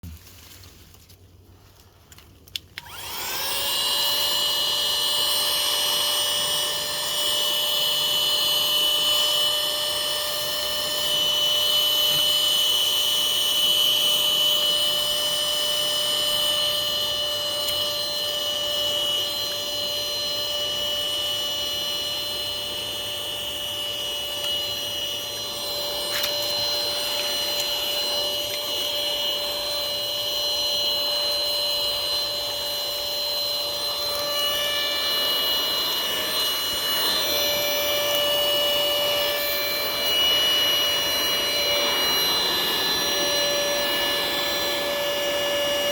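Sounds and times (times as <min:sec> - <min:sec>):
vacuum cleaner motor whining: 0:01.6 - 0:45.9
click: 0:02.1 - 0:03.0.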